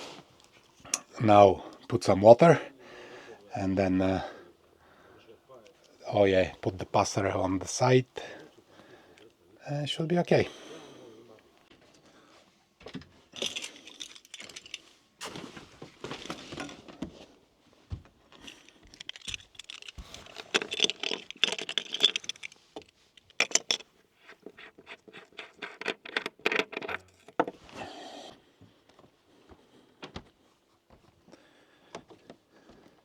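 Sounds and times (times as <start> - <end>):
gear clattering and scraping: 18.5 - 27.6.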